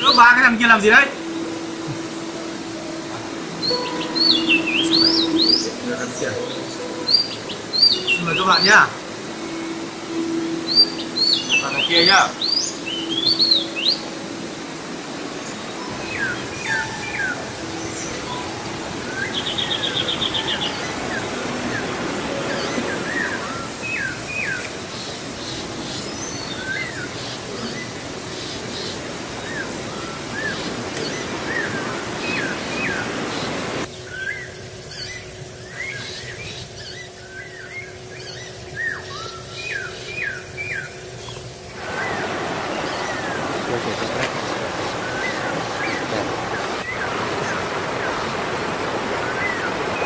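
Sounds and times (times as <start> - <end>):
small birds chirping: 0.0 - 50.0
steady rushing background: 41.5 - 50.0.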